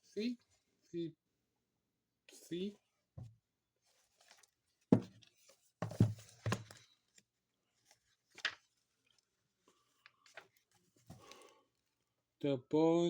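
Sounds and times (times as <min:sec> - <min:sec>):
dull knocks on picture book: 0:04.9 - 0:05.2, 0:05.8 - 0:06.8
paper rustling: 0:05.2 - 0:09.2, 0:09.8 - 0:11.4.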